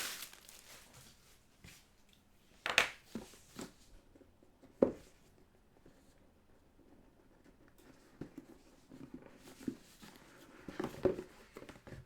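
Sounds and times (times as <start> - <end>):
packaging brushing scrapes: 0.0 - 1.0.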